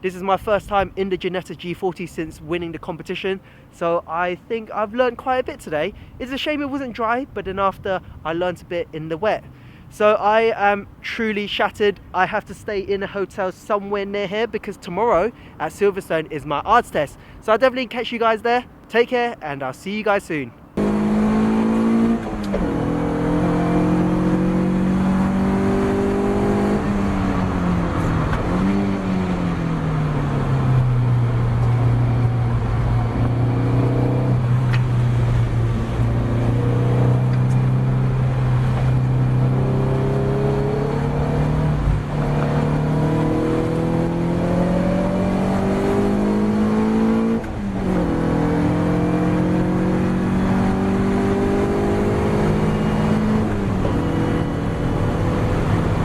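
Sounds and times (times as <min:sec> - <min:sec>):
race car engine revving: 0:20.8 - 0:56.0.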